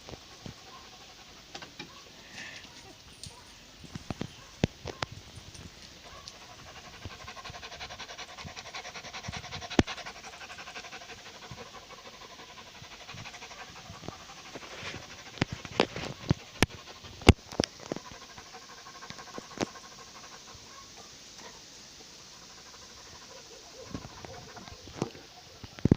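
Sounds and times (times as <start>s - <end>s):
cat breathing rapidly: 6.5s - 20.6s.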